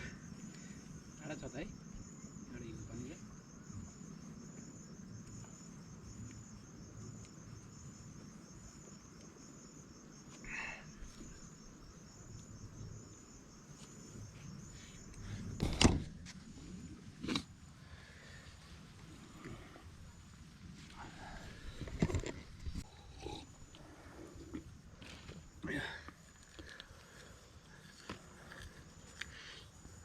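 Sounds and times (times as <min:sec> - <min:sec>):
insects chirping: 0:00.0 - 0:30.0.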